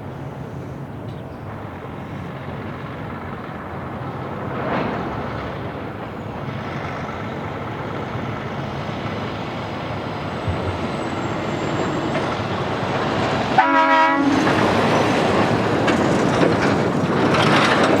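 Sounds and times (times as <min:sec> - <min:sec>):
heavy vehicle rumbling past: 0:01.5 - 0:18.0
short horn blast: 0:13.6 - 0:14.4.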